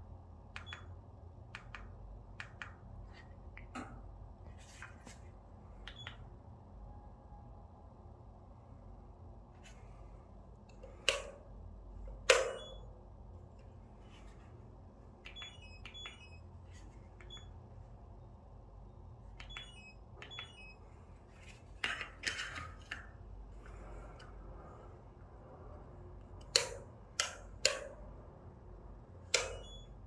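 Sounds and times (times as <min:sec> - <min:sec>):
short electronic beeps: 0:19.4 - 0:20.8, 0:29.5 - 0:30.0.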